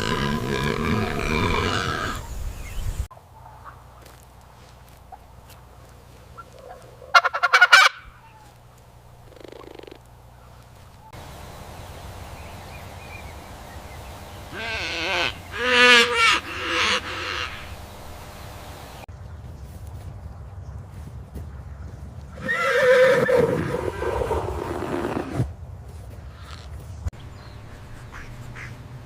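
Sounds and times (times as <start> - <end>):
farm birds calling: 0.0 - 20.1, 26.2 - 29.0.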